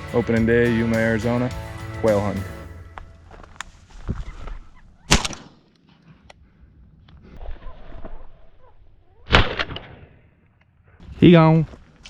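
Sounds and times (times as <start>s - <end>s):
gunshots with echo: 5.1s - 5.6s.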